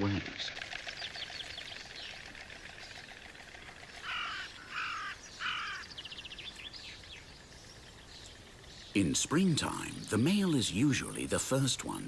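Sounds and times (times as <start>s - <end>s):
quick ticking: 0.0s - 12.0s
crow-like caws: 3.4s - 6.2s.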